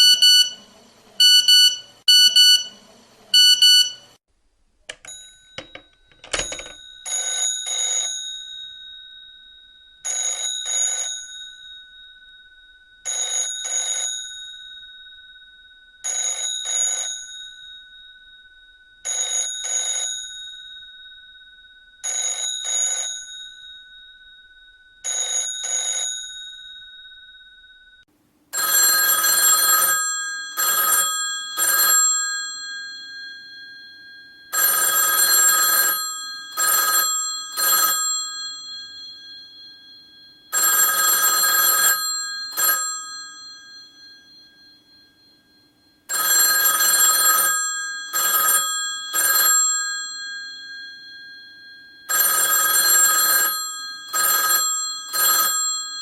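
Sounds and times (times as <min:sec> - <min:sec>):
harsh telephone bell ringing: 0:00.0 - 0:00.6, 0:03.4 - 0:04.2, 0:05.1 - 0:15.1, 0:16.1 - 0:17.9, 0:19.1 - 0:21.0, 0:22.0 - 0:27.7, 0:28.5 - 0:56.0
telephone bell double rings: 0:05.1 - 0:08.8, 0:28.6 - 0:56.0.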